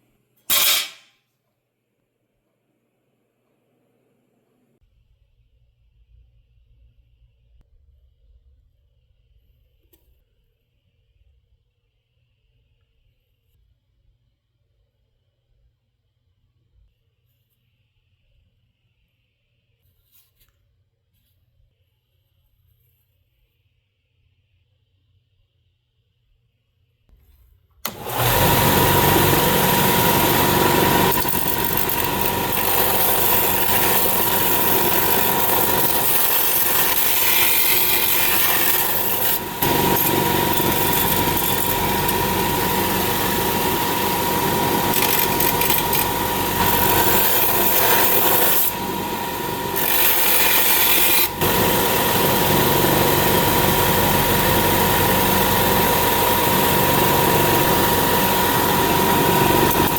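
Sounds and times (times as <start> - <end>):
power tool whining: 27.8 - 59.9.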